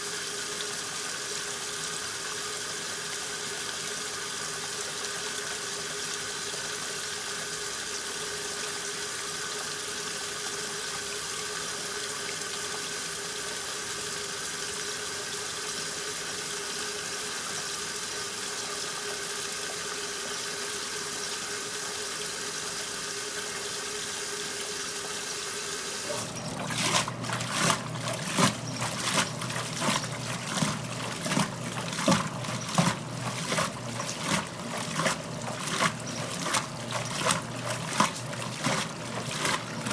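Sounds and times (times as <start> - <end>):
water rushing into washing machine: 0.0 - 39.9
water sloshing rhythmically: 17.5 - 39.9.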